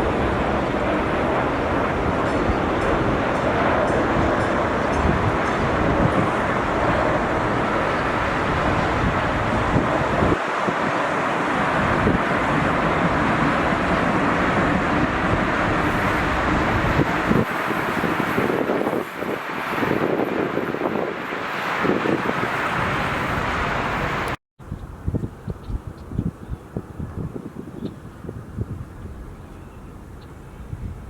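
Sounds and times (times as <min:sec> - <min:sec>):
jet engine rush: 0:00.0 - 0:24.4
gusty wind: 0:00.0 - 0:31.0
wind buffeting microphone: 0:00.0 - 0:31.0.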